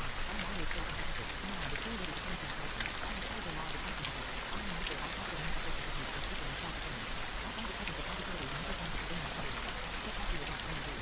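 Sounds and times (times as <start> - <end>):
gentle rain falling: 0.0 - 11.0.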